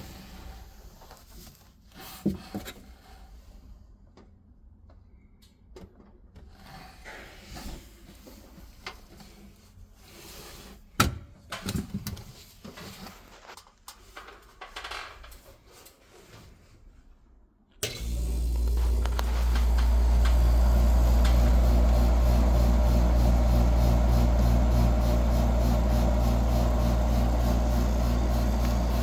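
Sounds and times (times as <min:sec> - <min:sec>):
refrigerator compressor humming: 0:17.8 - 0:29.0.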